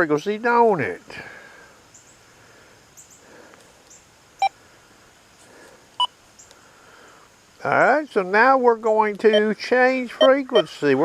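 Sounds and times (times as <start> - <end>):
metal detector beeps: 9.3 - 9.5, 10.2 - 10.8.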